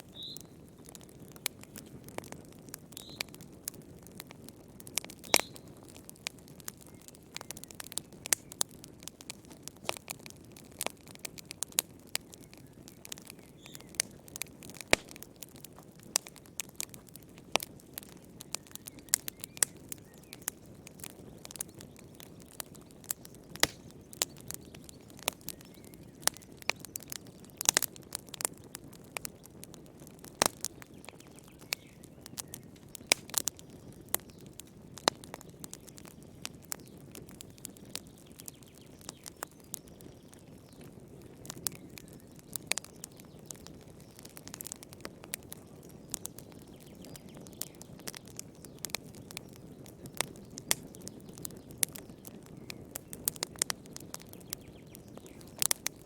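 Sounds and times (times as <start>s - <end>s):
low hush of burning: 0.0s - 56.0s
wood fire crackling: 0.0s - 56.0s.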